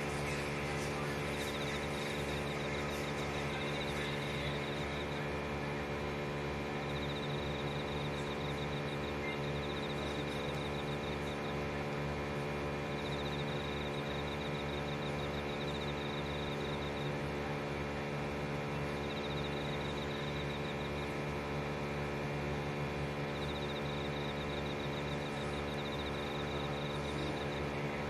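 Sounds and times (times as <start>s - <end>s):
electrical hum: 0.0s - 28.0s
insect chirping in high trills: 1.3s - 5.2s, 6.7s - 11.6s, 12.8s - 17.2s, 19.0s - 21.3s, 23.2s - 27.6s.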